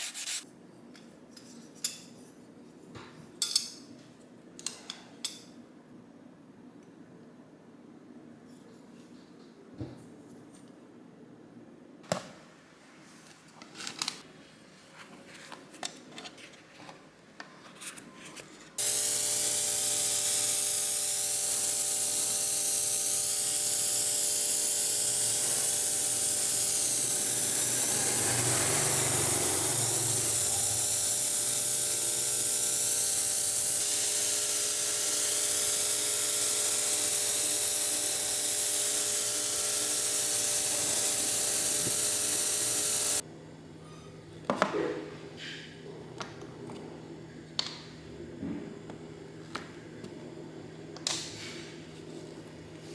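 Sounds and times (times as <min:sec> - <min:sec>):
electric power tool whirring: 0:18.8 - 0:43.2.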